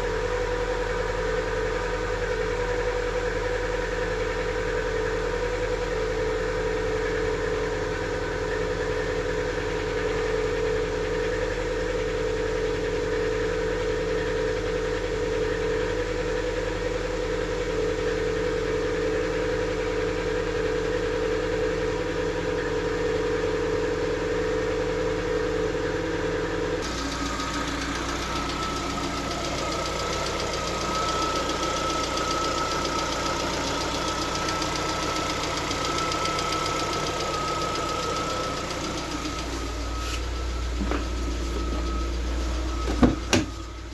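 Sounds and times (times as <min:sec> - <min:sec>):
car engine idling: 0:00.0 - 0:43.9
valve lifters ticking: 0:26.8 - 0:43.6.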